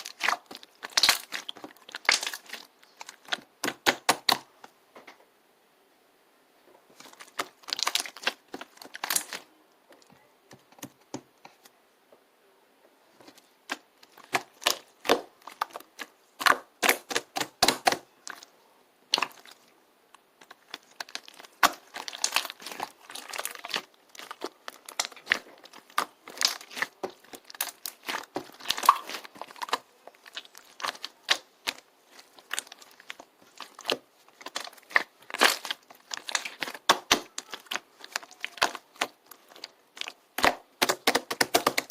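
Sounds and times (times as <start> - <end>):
clicking crinkling and tearing: 7.0 - 9.5, 19.1 - 41.9.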